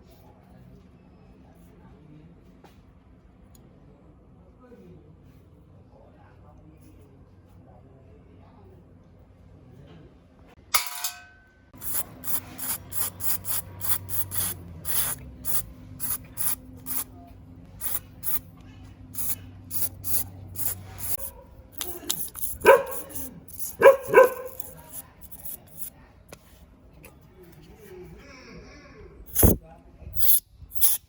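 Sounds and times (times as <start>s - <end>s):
short hissing sprays: 11.8s - 17.1s, 17.7s - 18.5s, 19.1s - 25.9s, 29.3s - 29.6s, 30.2s - 31.0s.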